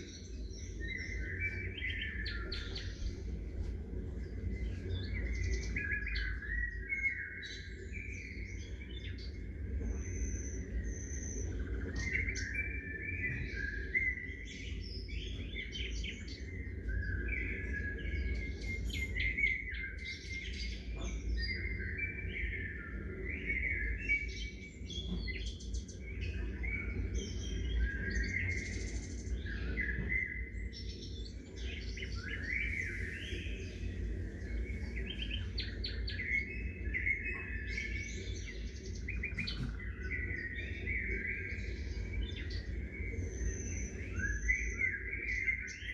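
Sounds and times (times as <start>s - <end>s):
songbirds chirping and singing: 0.0s - 45.9s
low rumble: 31.0s - 44.4s.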